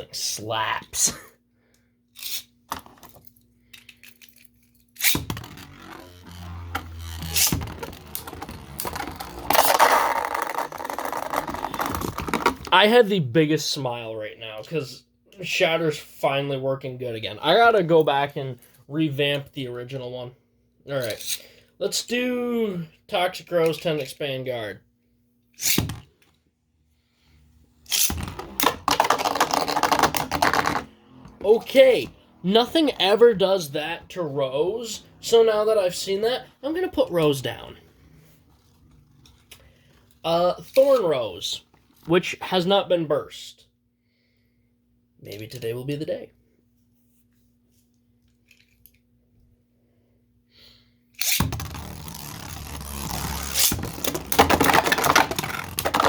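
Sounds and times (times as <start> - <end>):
spinning top launcher rip: 5.0 - 11.0, 25.6 - 25.9, 27.9 - 30.9, 51.2 - 56.0.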